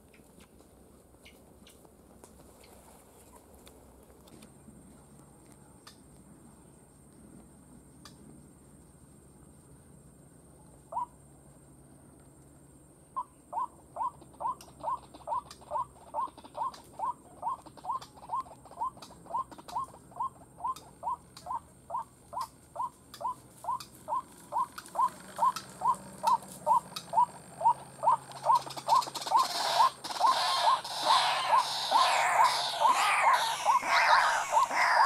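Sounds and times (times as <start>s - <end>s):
waterhen calling: 13.6s - 35.0s
rough noisy layer: 29.1s - 35.0s.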